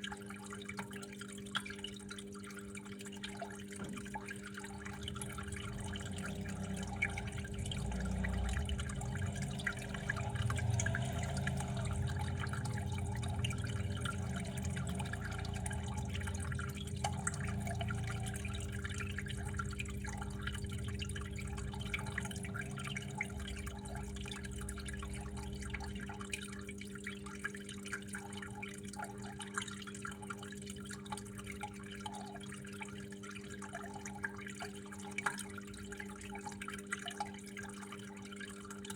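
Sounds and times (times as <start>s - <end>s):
water drips and splashes: 0.0s - 38.9s
water flowing: 0.0s - 38.9s
steady low hum: 2.8s - 29.8s.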